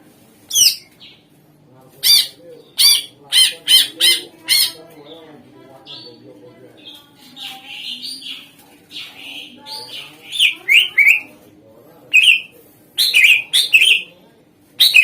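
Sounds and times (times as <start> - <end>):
bird singing sharp clear notes: 12.1 - 14.1.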